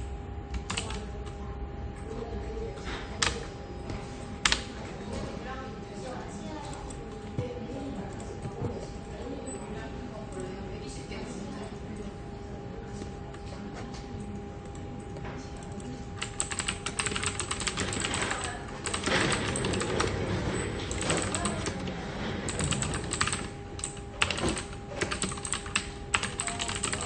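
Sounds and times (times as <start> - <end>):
steady background hum: 0.0 - 27.0
computer keyboard typing: 0.5 - 1.4, 4.4 - 4.7, 15.6 - 21.9, 22.5 - 27.0.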